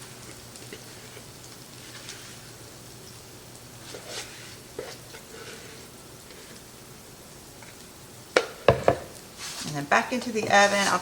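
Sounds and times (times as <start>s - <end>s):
batter sizzling in a skillet: 0.0s - 11.0s
soft scraping strokes: 3.8s - 6.6s, 9.4s - 9.8s.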